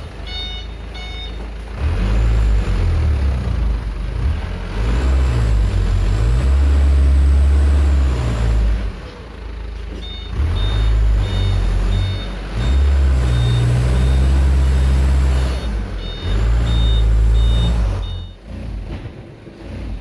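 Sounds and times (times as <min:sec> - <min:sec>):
diesel engine droning and revving: 0:00.0 - 0:20.0
reversing beeper: 0:00.2 - 0:01.4, 0:10.0 - 0:18.4.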